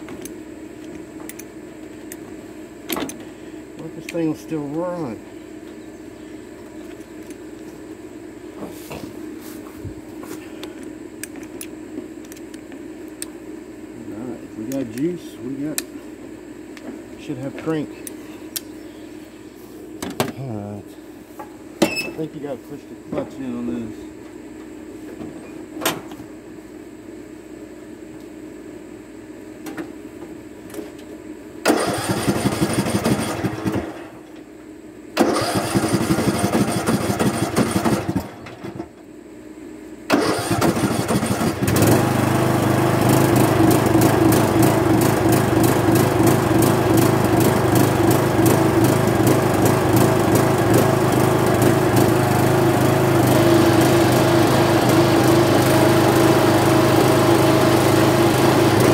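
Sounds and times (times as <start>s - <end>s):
electric starter cranking engine: 31.6s - 34.2s, 35.2s - 38.8s, 40.1s - 58.9s
mower engine running: 31.6s - 34.2s, 35.2s - 38.8s, 40.1s - 58.9s.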